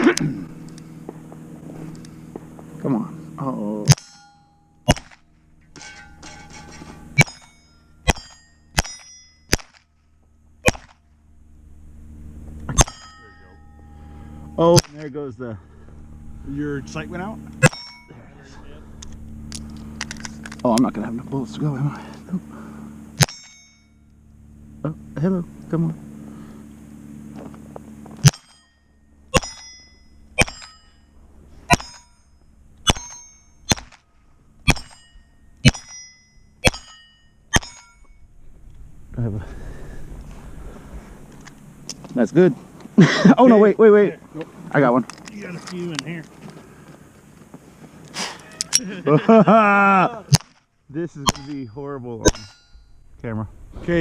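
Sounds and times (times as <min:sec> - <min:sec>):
steel target plates ringing: 0:03.8 - 0:10.9, 0:12.7 - 0:15.8, 0:16.8 - 0:18.2, 0:23.1 - 0:24.1, 0:28.2 - 0:38.5, 0:51.1 - 0:53.2
pistol shots: 0:04.8 - 0:05.3, 0:08.1 - 0:09.9, 0:10.6 - 0:11.0, 0:14.7 - 0:15.1, 0:29.3 - 0:29.7, 0:30.4 - 0:30.8, 0:32.8 - 0:34.0.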